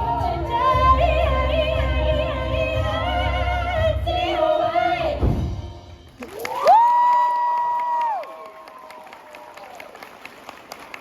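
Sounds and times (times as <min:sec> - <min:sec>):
audience cheering and whooping: 0:06.2 - 0:11.0.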